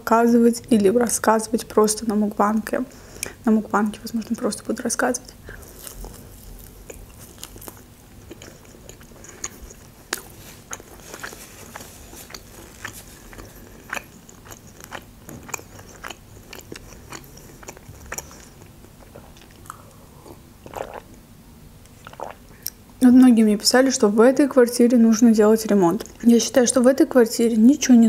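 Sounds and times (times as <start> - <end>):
chewing meat: 5.4 - 21.2
crunchy mouth clicks: 5.9 - 21.2, 21.8 - 22.8.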